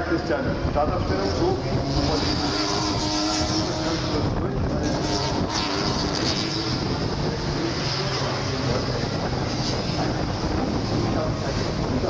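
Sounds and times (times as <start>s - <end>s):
race car engines running: 0.0s - 12.0s.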